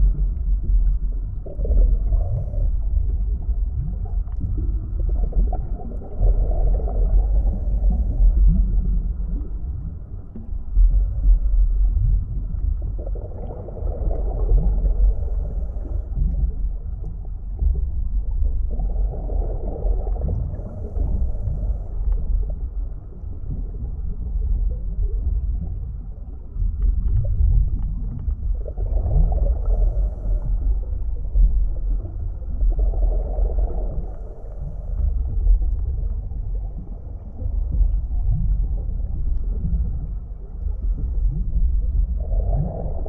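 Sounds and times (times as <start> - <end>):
low underwater rumble: 0.0 - 43.0.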